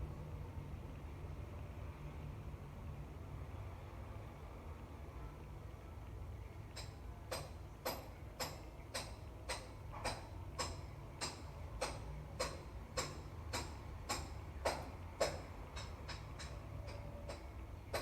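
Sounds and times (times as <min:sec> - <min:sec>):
metallic tapping strikes: 0:06.7 - 0:18.0.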